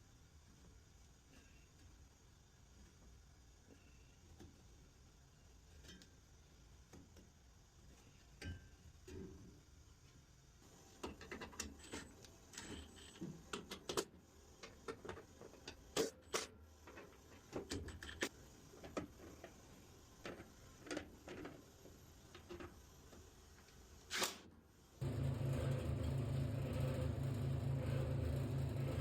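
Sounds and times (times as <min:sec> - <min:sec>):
motor humming: 0:25.0 - 0:29.0.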